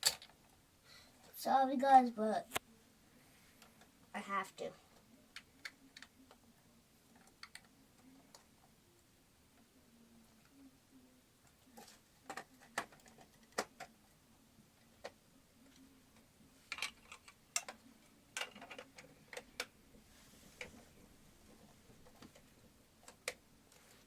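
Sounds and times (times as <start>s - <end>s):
plastic pieces clicking together: 0.0s - 0.4s, 11.8s - 13.9s, 16.7s - 17.8s, 18.4s - 19.7s.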